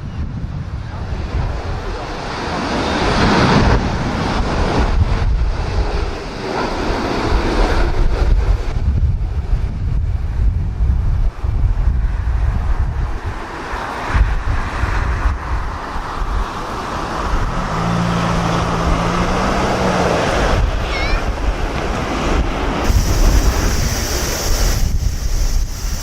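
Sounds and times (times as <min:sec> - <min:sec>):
gusty wind buffeting microphone: 0:00.0 - 0:26.0
jet engines: 0:00.0 - 0:26.0
high hiss: 0:22.8 - 0:26.0.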